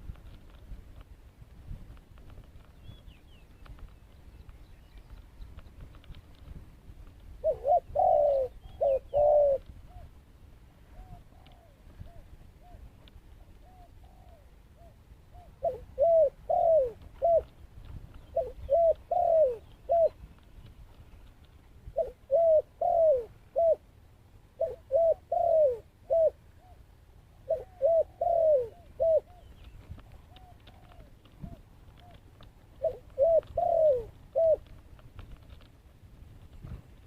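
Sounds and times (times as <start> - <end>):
dove cooing: 7.4 - 10.2, 10.9 - 17.5, 18.3 - 20.2, 21.9 - 23.9, 24.6 - 34.7.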